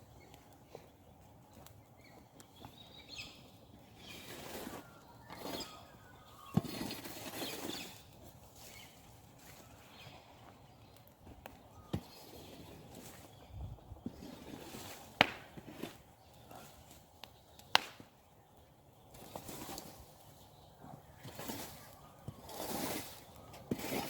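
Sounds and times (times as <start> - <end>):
birds calling: 0.0 - 23.8
campfire crackling: 0.0 - 24.0
sharp wood snaps: 17.2 - 18.1.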